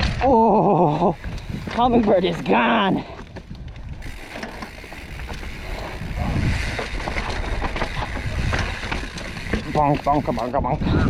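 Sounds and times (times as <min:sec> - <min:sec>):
bike knocks and rattles: 0:00.0 - 0:10.8
bike tyre rumble: 0:00.0 - 0:11.0
wind noise on microphone: 0:00.0 - 0:11.0.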